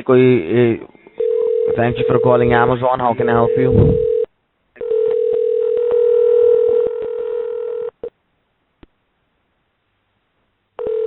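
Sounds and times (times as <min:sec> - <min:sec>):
telephone line tone: 0:01.2 - 0:08.1, 0:10.8 - 0:11.0.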